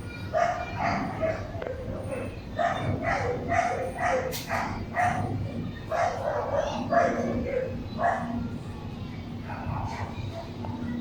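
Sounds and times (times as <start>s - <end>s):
dog barking: 0.3s - 8.4s, 9.5s - 10.5s.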